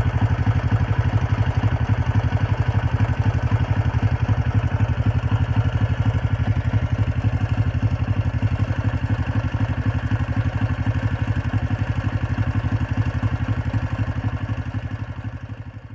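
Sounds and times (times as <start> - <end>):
motorcycle engine idling: 0.0 - 15.9.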